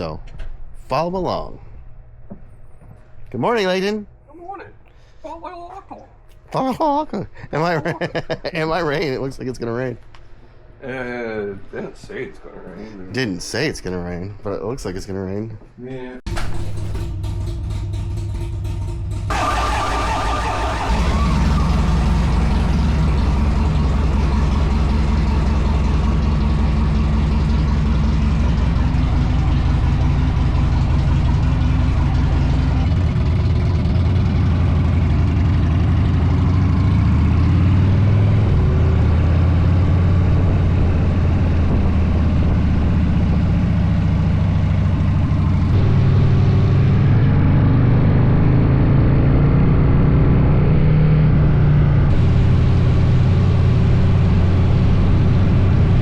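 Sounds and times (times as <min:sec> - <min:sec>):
motorcycle engine running: 0:16.3 - 0:37.6, 0:39.3 - 0:48.5.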